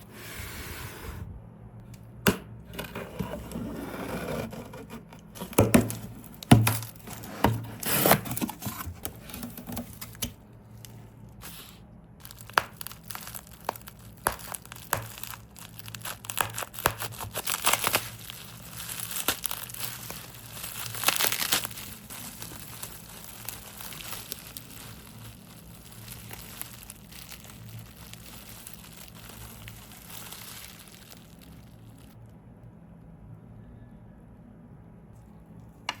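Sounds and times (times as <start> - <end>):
hands crinkling and rustling: 5.3 - 32.2.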